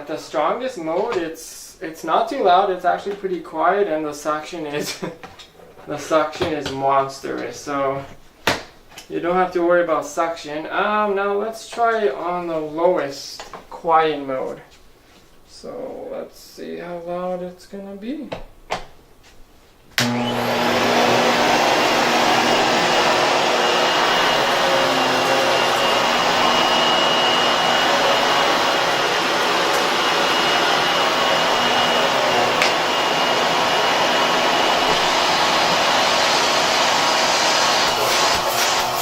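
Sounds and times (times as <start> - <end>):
upright vacuum running: 20.0 - 39.0.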